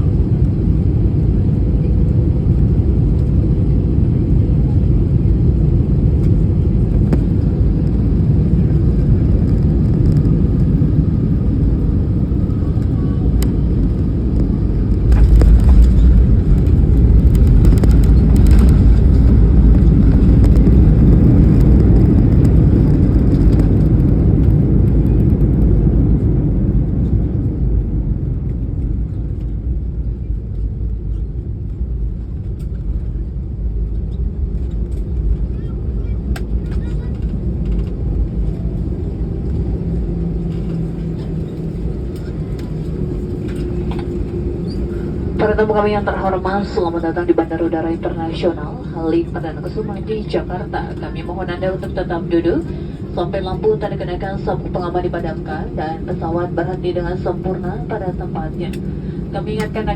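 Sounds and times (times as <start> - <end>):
jet engine drone in cabin: 0.0 - 59.9
wheels touching down rumble: 13.4 - 25.5.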